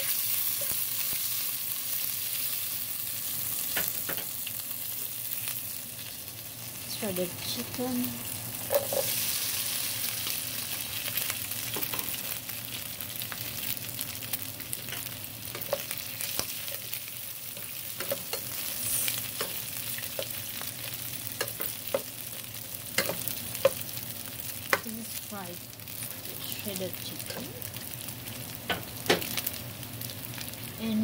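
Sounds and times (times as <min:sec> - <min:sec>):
chicken frying in hot oil: 0:00.0 - 0:31.0
spatula scraping and tapping pan: 0:23.0 - 0:23.8.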